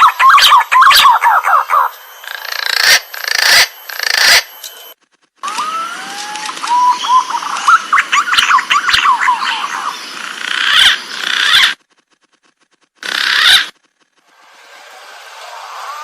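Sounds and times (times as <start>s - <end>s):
pigeons calling with whistled notes: 0.0s - 4.5s, 5.4s - 11.8s.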